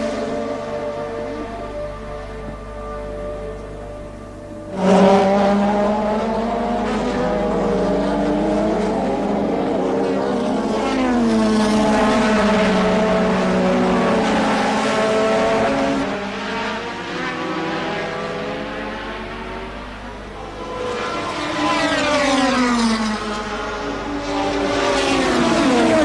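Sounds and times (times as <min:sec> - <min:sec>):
race car engines at speed: 0:00.0 - 0:26.0.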